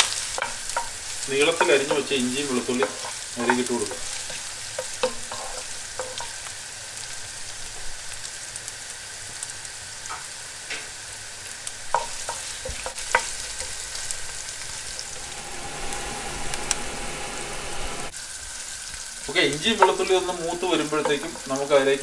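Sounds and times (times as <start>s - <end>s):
ginger and garlic sizzling in oil: 0.0s - 22.0s
wooden spatula scraping pot: 0.4s - 6.3s.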